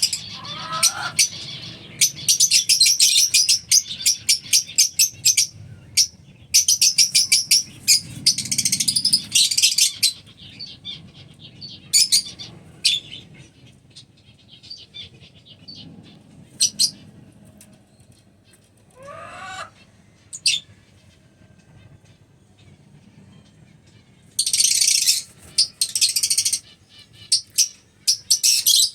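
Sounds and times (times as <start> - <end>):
wavering rising bird call: 0.0 - 4.6, 18.9 - 20.7
lovebirds chirping shrilly: 0.0 - 13.3, 24.4 - 28.9.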